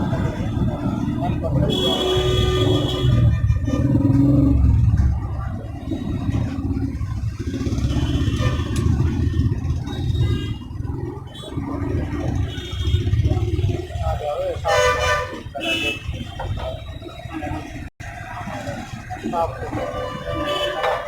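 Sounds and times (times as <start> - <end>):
engine running low rumble: 0.0 - 14.7.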